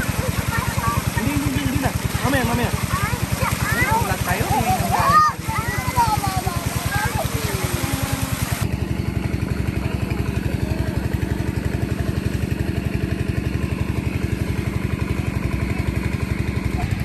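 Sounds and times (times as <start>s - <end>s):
rushing water-like hiss: 0.0s - 8.7s
small engine chugging: 0.0s - 17.0s.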